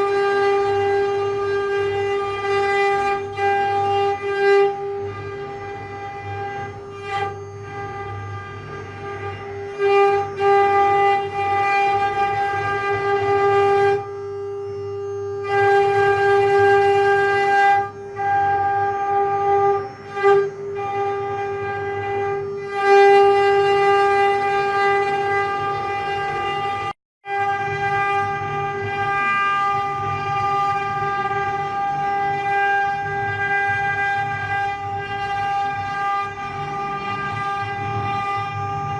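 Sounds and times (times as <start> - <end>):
router spindle whining: 0.0 - 38.9.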